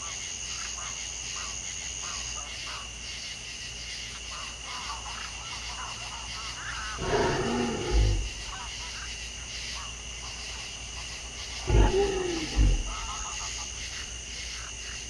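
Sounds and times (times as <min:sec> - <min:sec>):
high insect drone: 0:05.2 - 0:15.0
loud animal call: 0:07.0 - 0:08.7, 0:11.6 - 0:14.1.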